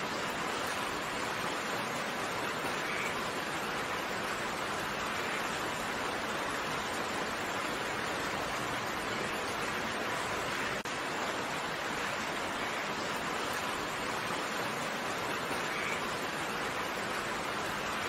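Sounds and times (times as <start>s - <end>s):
steady rain hiss: 0.0s - 18.0s.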